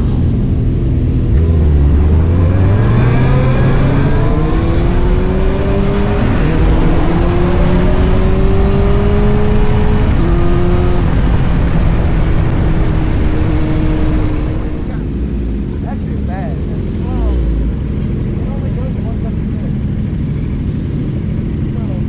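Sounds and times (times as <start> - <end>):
wind rush: 0.0 - 15.2
motorcycle engine accelerating: 0.0 - 15.9.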